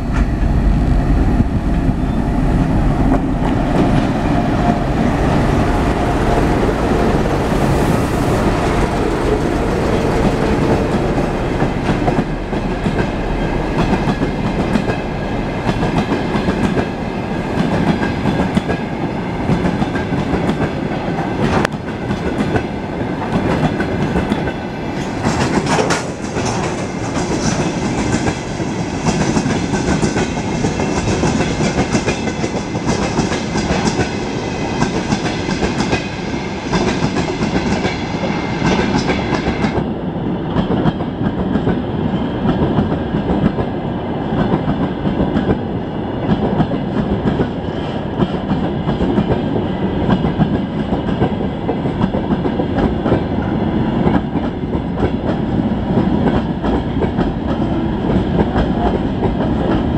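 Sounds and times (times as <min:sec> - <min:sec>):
train wheels clattering over rails: 0:01.3 - 0:39.9.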